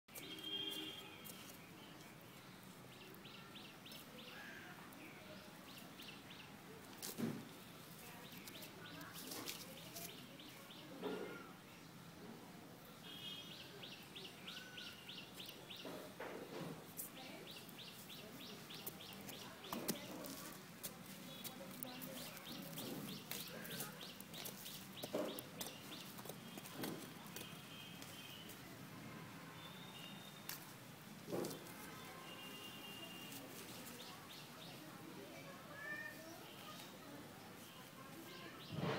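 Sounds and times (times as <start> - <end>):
small birds chirping: 0.1 - 6.7, 13.1 - 16.3, 17.0 - 28.6.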